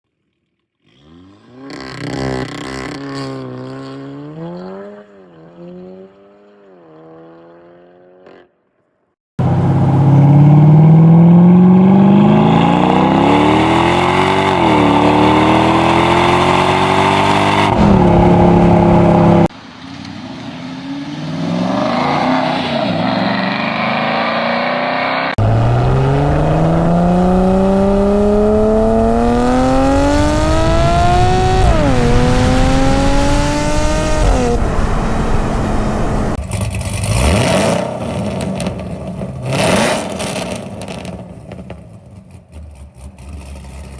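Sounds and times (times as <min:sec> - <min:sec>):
car engine accelerating: 0:09.4 - 0:41.2
car engine revving: 0:09.4 - 0:41.2.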